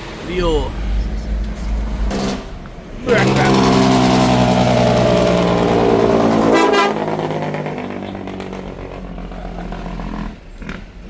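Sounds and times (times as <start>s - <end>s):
engine and road noise: 0.0s - 11.0s
vehicle horn: 5.9s - 8.8s.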